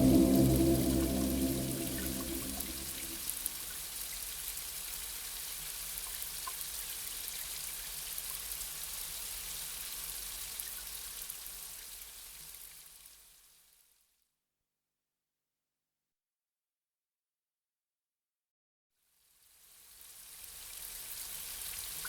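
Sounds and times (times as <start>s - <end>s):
music: 0.0s - 3.4s.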